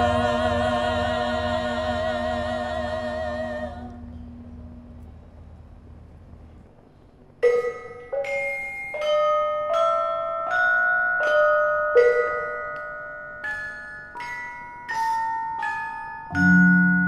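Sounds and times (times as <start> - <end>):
metallophones playing slow melody: 7.4 - 17.0.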